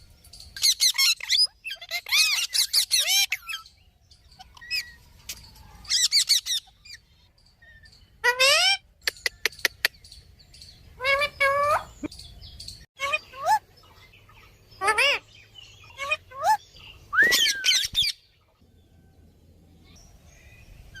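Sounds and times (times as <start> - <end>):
parrot squawking and chirping: 0.6 - 5.0, 5.8 - 12.1, 13.0 - 18.3
parrot swooping whistle: 17.1 - 18.1.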